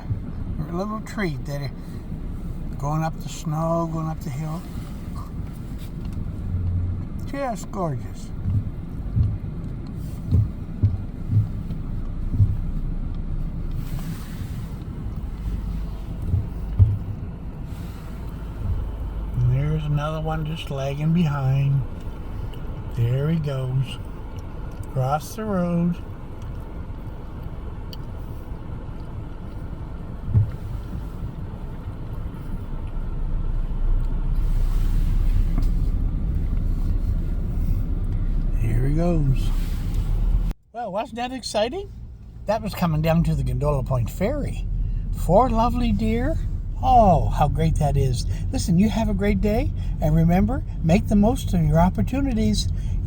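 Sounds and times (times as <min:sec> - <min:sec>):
vehicle engine rumble: 0:00.0 - 0:53.0
dull thump: 0:10.2 - 0:12.8, 0:16.3 - 0:17.2, 0:30.3 - 0:30.6.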